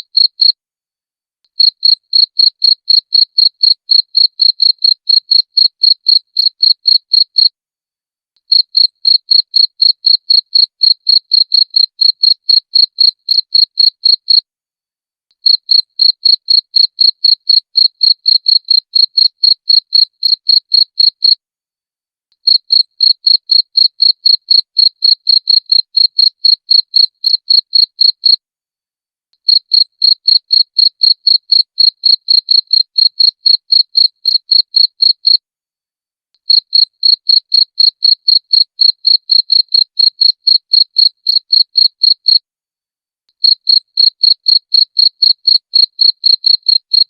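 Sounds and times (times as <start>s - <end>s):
cricket chirping: 11.1s - 14.2s.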